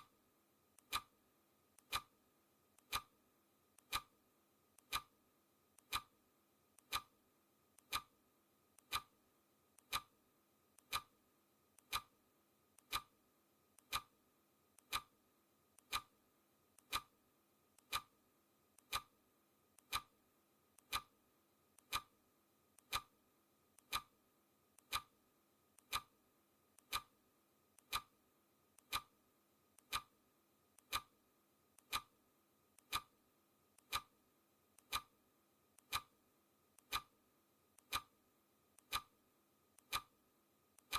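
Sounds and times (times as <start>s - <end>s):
clock ticking: 0.8s - 1.1s, 1.8s - 2.2s, 2.8s - 3.2s, 3.8s - 4.1s, 4.8s - 5.2s, 5.8s - 6.1s, 6.8s - 7.1s, 7.8s - 8.1s, 8.8s - 9.2s, 9.8s - 10.2s, 10.8s - 11.2s, 11.8s - 12.2s, 12.8s - 13.2s, 13.8s - 14.2s, 14.8s - 15.2s, 15.8s - 16.2s, 16.8s - 17.2s, 17.8s - 18.2s, 18.8s - 19.2s, 19.8s - 20.2s, 20.8s - 21.2s, 21.8s - 22.2s, 22.8s - 23.1s, 23.8s - 24.2s, 24.8s - 25.2s, 25.8s - 26.2s, 26.8s - 27.2s, 27.8s - 28.2s, 28.8s - 29.2s, 29.8s - 30.2s, 30.8s - 31.2s, 31.8s - 32.2s, 32.8s - 33.2s, 33.8s - 34.2s, 34.8s - 35.2s, 35.8s - 36.2s, 36.8s - 37.2s, 37.8s - 38.2s, 38.8s - 39.2s, 39.8s - 40.2s.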